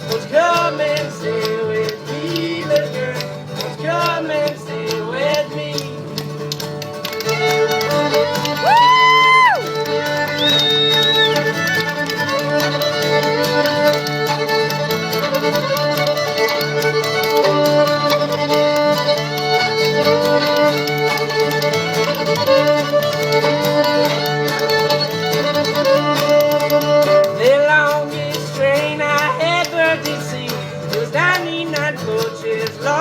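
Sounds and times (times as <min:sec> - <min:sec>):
strummed acoustic guitar: 0:00.0 - 0:33.0
fiddle playing lead: 0:06.9 - 0:28.3
spoons clicking rhythm: 0:09.6 - 0:32.4.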